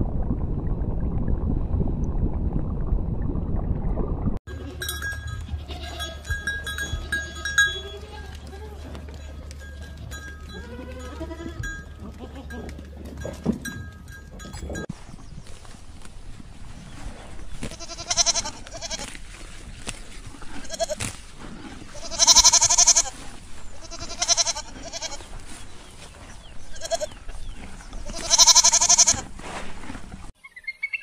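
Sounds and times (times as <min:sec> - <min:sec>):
goats bleating: 0:04.5 - 0:12.9, 0:17.7 - 0:19.2, 0:20.6 - 0:21.0, 0:22.0 - 0:23.2, 0:23.8 - 0:25.3, 0:26.8 - 0:27.2, 0:28.1 - 0:29.3.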